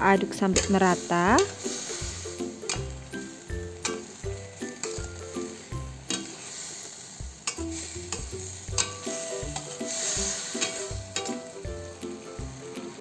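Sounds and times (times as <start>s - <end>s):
metal spatula scraping wok: 0.0s - 12.7s
vegetables sizzling: 0.0s - 13.0s
spatula clicking against pan: 7.4s - 9.0s.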